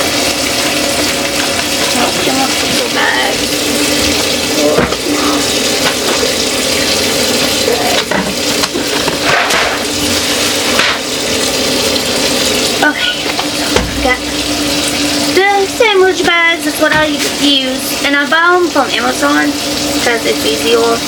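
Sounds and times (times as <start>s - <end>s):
faucet water running into sink: 0.0s - 21.0s
items knocking against sink: 1.3s - 3.0s, 4.0s - 5.2s, 5.8s - 6.3s, 7.8s - 9.9s, 10.6s - 11.1s, 13.0s - 14.4s, 16.8s - 17.4s.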